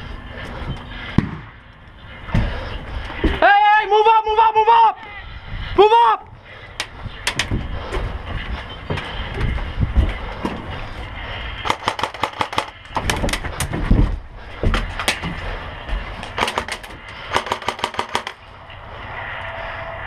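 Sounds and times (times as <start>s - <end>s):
low rumble: 0.0s - 3.4s, 5.0s - 20.0s
airsoft guns firing: 1.2s - 1.6s, 11.6s - 12.8s, 16.4s - 18.4s.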